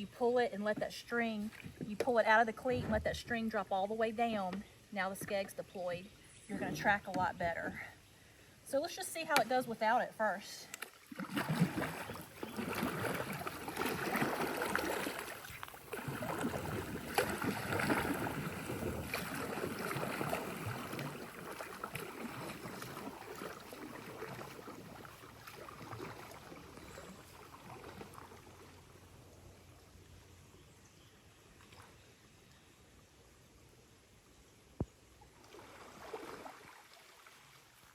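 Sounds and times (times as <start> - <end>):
paddle strokes splashing water: 10.7 - 29.0.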